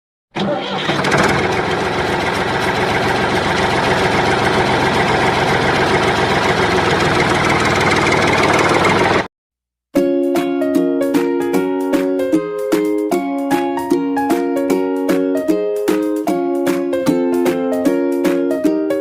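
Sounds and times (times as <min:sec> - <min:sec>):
engine running steadily: 0:00.4 - 0:09.3.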